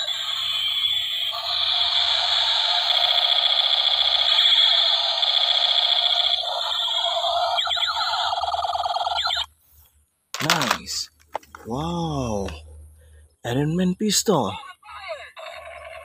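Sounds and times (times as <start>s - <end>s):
toy blaster electronic sound effect: 0.0s - 9.5s, 15.4s - 16.0s.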